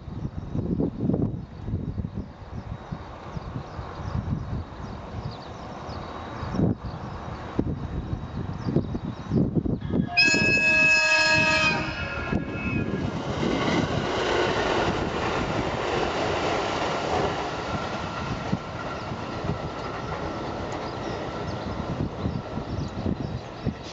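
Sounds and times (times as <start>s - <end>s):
train wheels rumbling on rails: 1.1s - 23.9s
train horn blast: 9.8s - 13.1s.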